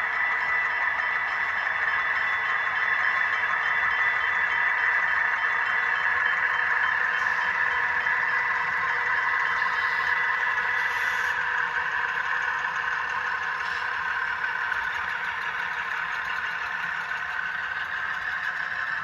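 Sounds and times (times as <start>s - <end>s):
diesel engine sound from small speakers: 0.0s - 19.0s
model wheels clattering on track: 5.7s - 19.0s.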